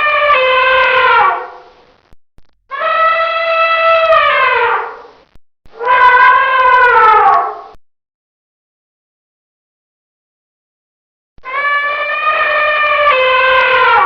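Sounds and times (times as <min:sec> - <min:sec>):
elephant trumpeting: 0:00.0 - 0:01.7, 0:02.7 - 0:05.1, 0:05.8 - 0:07.7, 0:11.4 - 0:14.0.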